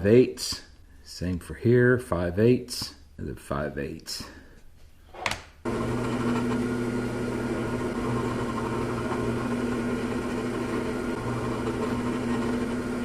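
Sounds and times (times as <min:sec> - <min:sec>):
woodshop machine motor humming: 0:05.7 - 0:13.0.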